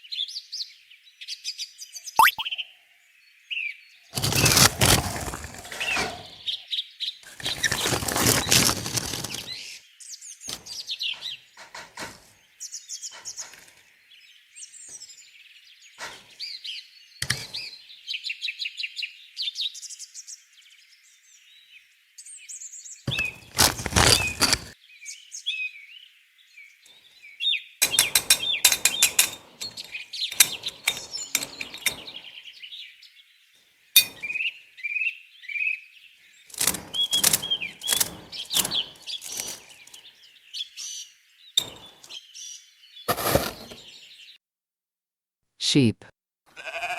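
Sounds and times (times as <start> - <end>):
small birds chirping: 0.0 - 44.4
sharp clicks and clattering knocks: 27.8 - 32.2, 36.5 - 40.0.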